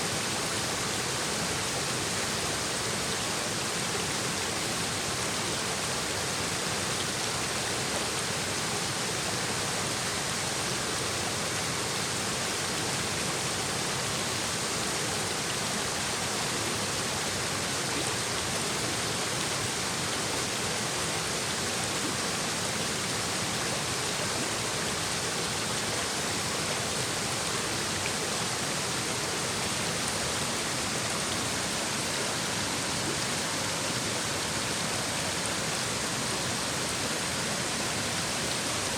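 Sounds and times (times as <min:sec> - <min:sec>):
stream babbling over rocks: 0:00.0 - 0:38.9.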